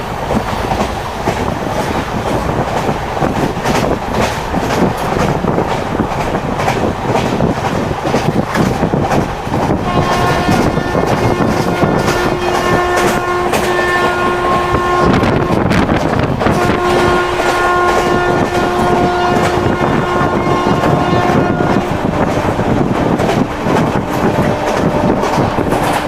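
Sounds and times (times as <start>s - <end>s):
train rumble and rail clatter: 0.0s - 26.0s
train horn blasts: 9.8s - 26.0s.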